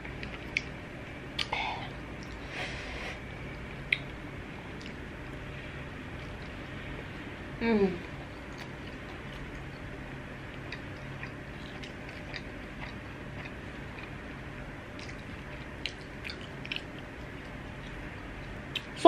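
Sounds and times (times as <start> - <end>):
low steady hum: 0.0 - 19.0
person chewing with mouth clicks: 10.5 - 14.1, 15.0 - 18.0.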